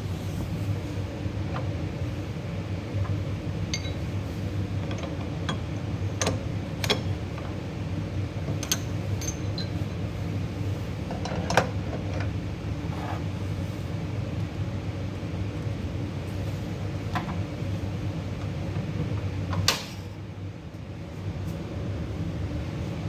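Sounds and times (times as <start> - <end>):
low mechanical hum: 0.0 - 23.0
metallic clinks and taps: 3.7 - 4.0.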